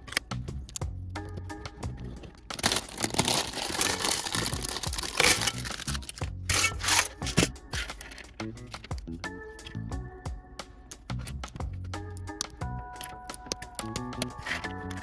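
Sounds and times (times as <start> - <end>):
background music: 0.0 - 15.0
plastic bag tearing and rustling: 2.2 - 8.3
plastic bricks clicking: 2.3 - 9.0.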